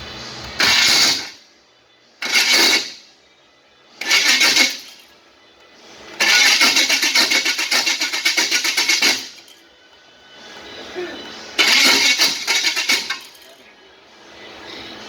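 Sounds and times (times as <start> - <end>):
car engine cranking: 0.4 - 1.4, 2.2 - 3.0, 4.0 - 5.1, 6.0 - 9.6, 10.5 - 13.6.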